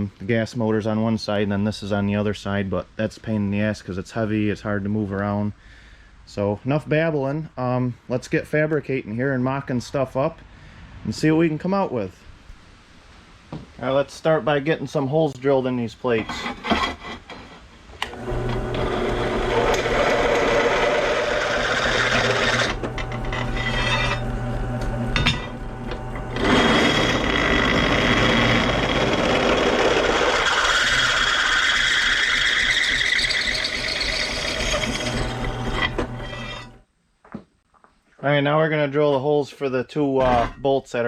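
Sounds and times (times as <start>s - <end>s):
electric drill boring through steel: 18.0s - 36.8s.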